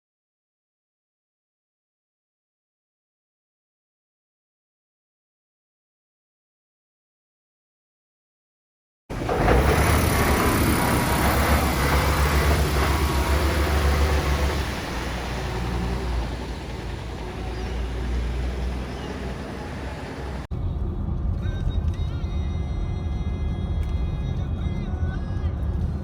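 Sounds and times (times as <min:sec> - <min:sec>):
garbage truck engine rumbling: 0:09.1 - 0:20.5.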